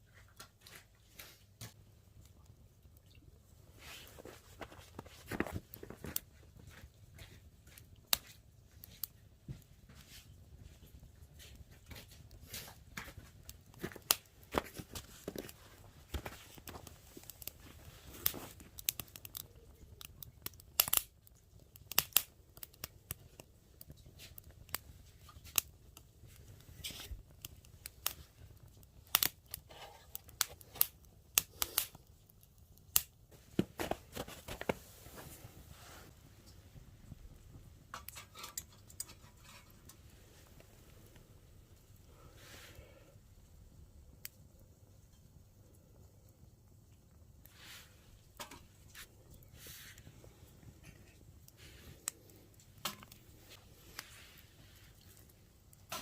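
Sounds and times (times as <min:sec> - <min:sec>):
dry twigs snapping: 0:18.2 - 0:21.1, 0:29.1 - 0:29.6.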